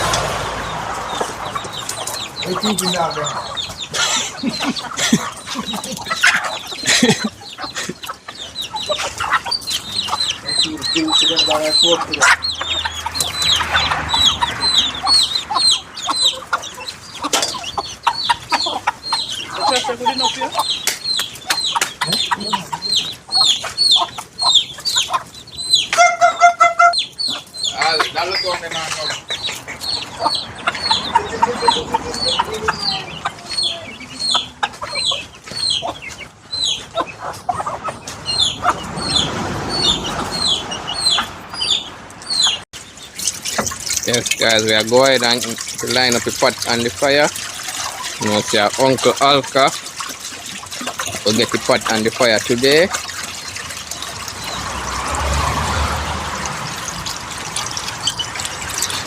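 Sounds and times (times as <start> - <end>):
chicken clucking: 0.0 - 59.0
chicks peeping: 0.0 - 59.0.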